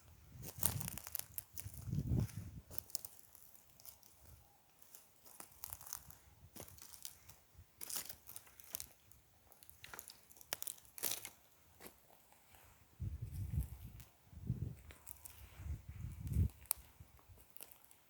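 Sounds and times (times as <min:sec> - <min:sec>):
dry debris crackling and snapping: 0:00.4 - 0:02.1, 0:02.7 - 0:07.2, 0:07.8 - 0:11.4, 0:14.8 - 0:15.4, 0:16.2 - 0:18.0
sharp clicks and crunches: 0:00.5 - 0:02.0, 0:14.8 - 0:15.4, 0:16.2 - 0:18.0.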